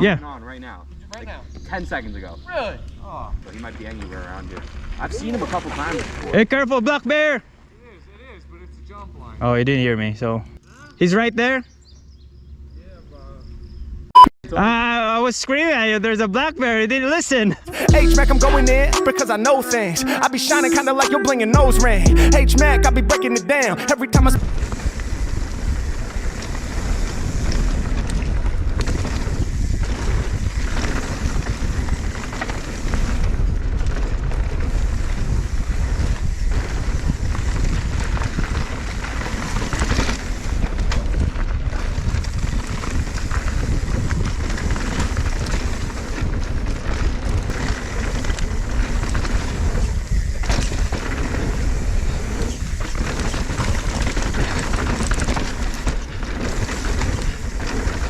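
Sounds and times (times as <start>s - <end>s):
bike tyre noise: 2.8s - 6.4s, 24.4s - 58.0s
bike clattering over rough ground: 3.4s - 6.6s, 24.7s - 58.0s
wind buffeting microphone: 24.4s - 58.0s.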